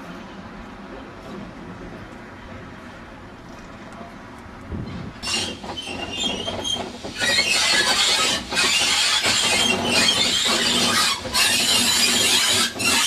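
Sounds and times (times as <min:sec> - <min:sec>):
train running with hiss and rumble: 0:00.0 - 0:13.0.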